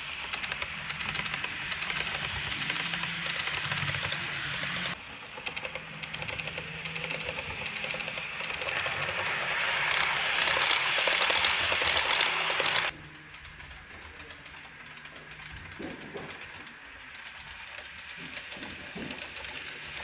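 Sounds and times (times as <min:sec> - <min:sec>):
model train wheels rattling: 0:00.0 - 0:20.0.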